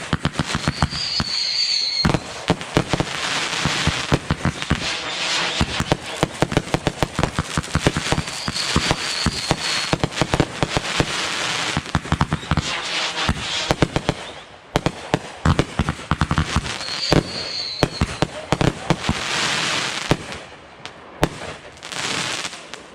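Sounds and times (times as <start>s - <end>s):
firework whistle: 0.0s - 14.6s, 16.4s - 18.5s
fireworks bangs and crackles: 0.0s - 22.9s.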